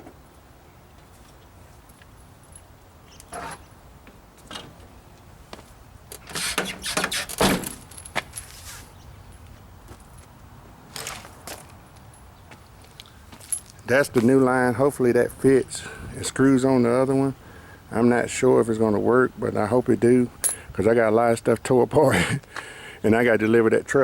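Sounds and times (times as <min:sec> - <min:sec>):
metallic clinks and rattles: 0:07.1 - 0:08.6, 0:10.9 - 0:12.3, 0:20.4 - 0:20.7.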